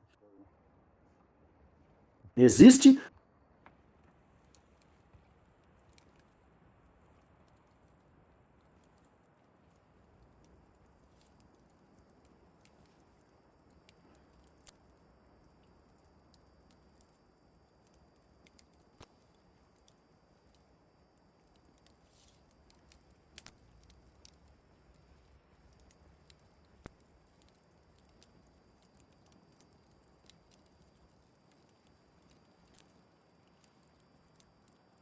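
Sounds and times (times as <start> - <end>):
low steady background hiss: 0.0 - 35.0
faint scattered clicks: 4.0 - 35.0
soft patter: 17.8 - 35.0.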